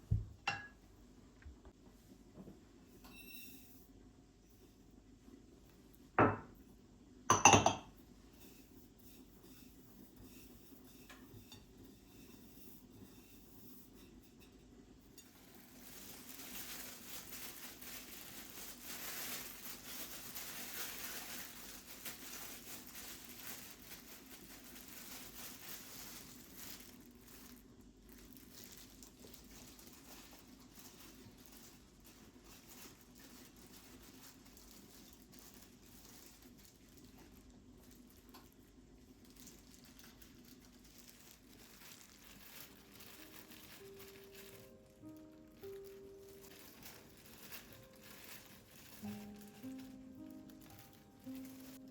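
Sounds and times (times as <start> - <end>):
kitchenware clinking: 0.4 - 0.8, 6.2 - 6.6, 7.3 - 8.0.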